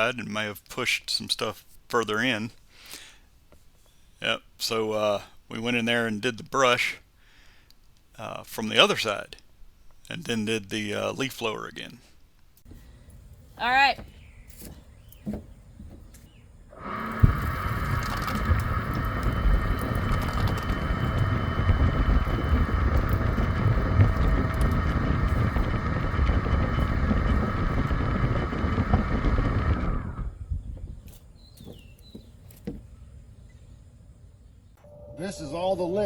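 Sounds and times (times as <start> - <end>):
leaf blower rushing air: 16.2 - 30.5.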